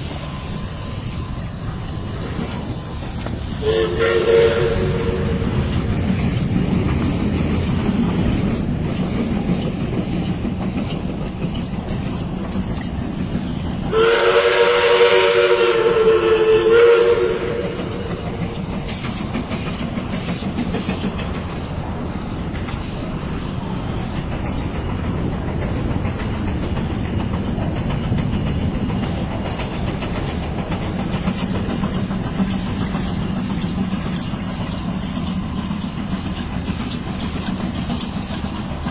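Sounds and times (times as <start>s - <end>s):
moving train running noise: 0.0s - 38.9s
steam locomotive whistle: 3.5s - 5.7s, 13.8s - 18.7s.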